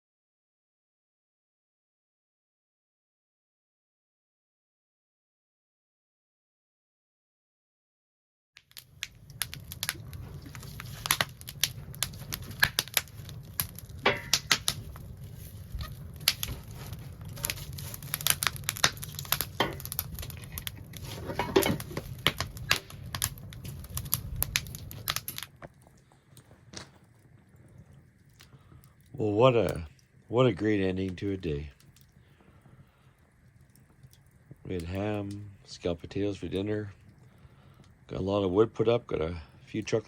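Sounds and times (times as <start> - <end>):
wood fire crackling and popping: 8.6 - 40.0.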